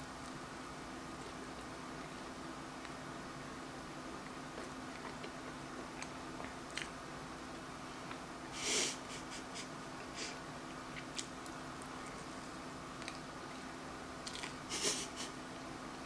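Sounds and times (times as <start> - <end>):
faint steady hum: 0.0 - 16.0
person chewing: 4.2 - 7.0, 10.7 - 12.4, 13.0 - 14.6.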